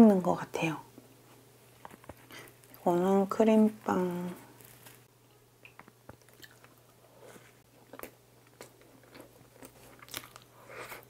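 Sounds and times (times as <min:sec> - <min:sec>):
person biting and chewing: 0:05.7 - 0:06.8, 0:07.8 - 0:11.0.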